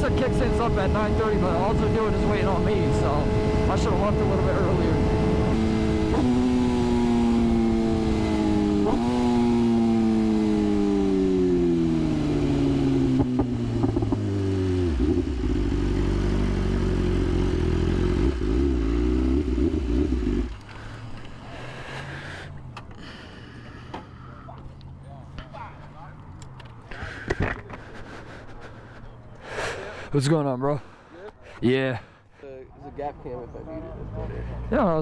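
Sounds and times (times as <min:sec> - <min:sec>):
motorcycle engine decelerating and idling: 0:00.0 - 0:27.8.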